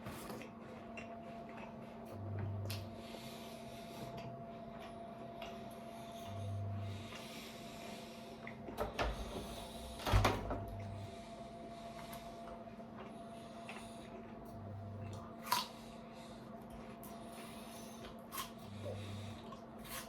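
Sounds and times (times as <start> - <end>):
steady low hum: 0.0 - 20.0
apple crunching: 15.1 - 15.8, 18.1 - 18.6.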